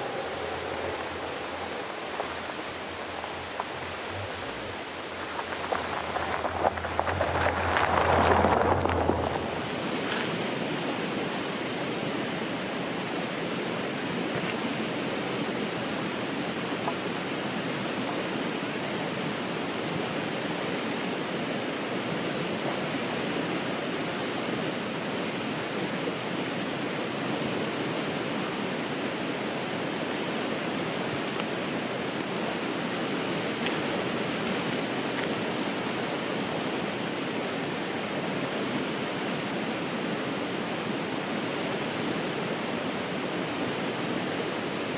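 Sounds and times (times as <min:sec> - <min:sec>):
river water rushing: 0:00.0 - 0:44.9.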